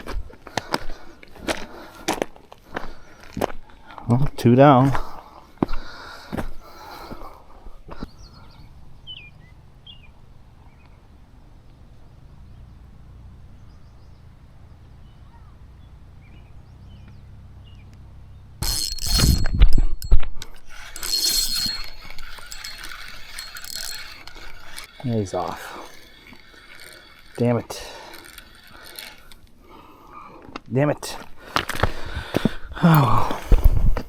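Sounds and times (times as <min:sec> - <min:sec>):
fishing reel clicking whir: 0:18.6 - 0:30.1.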